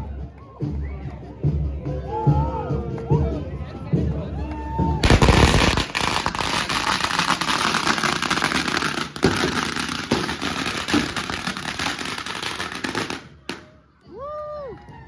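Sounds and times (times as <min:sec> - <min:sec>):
sharp bangs: 0:05.0 - 0:13.6
firecrackers crackling: 0:05.0 - 0:13.8.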